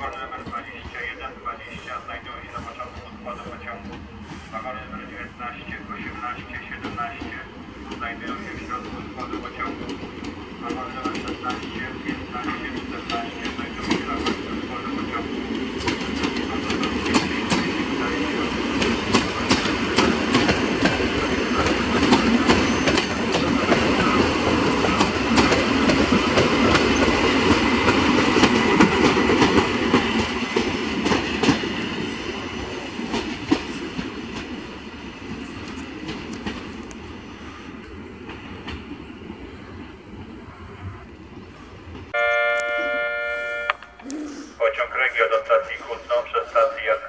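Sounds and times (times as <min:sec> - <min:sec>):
electric train running past: 0:00.0 - 0:47.0
train wheels clacking over rail joints: 0:06.4 - 0:14.6, 0:15.5 - 0:32.1.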